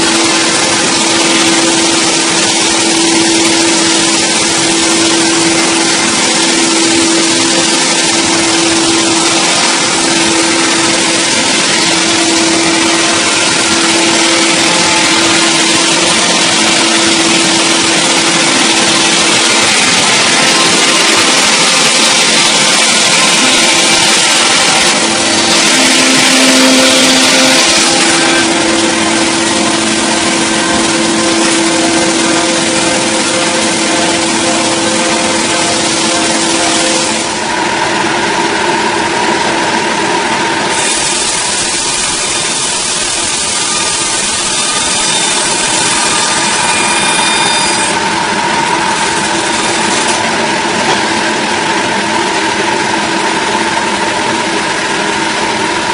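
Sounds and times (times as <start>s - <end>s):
chainsaw cutting through log: 0.0s - 37.4s.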